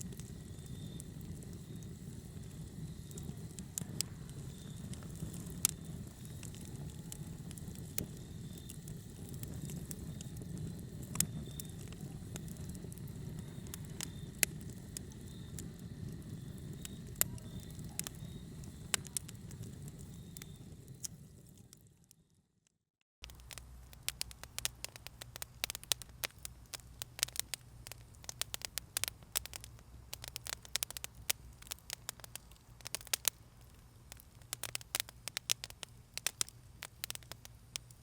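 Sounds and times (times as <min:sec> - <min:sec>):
wood fire crackling: 0:00.0 - 0:22.1, 0:23.2 - 0:38.0.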